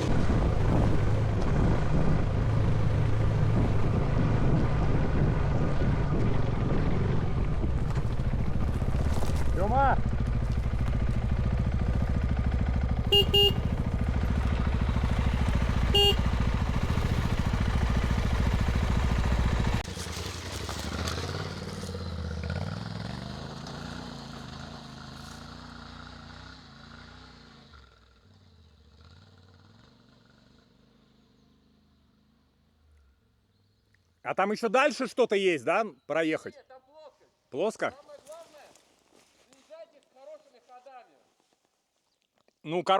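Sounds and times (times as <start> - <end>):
motorcycle engine running: 0.0 - 32.4
short beeps: 13.1 - 13.7, 16.0 - 16.3.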